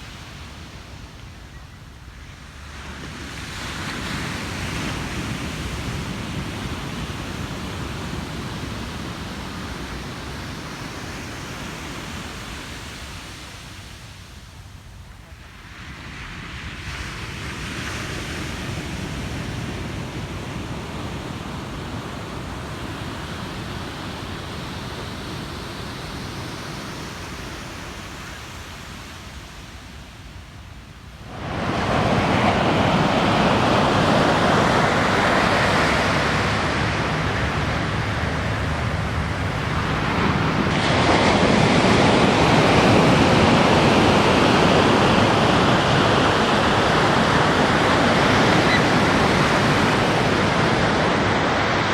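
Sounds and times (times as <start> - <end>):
ocean surf washing on beach: 2.3 - 14.8, 15.4 - 51.9
wave crashing: 31.2 - 51.9.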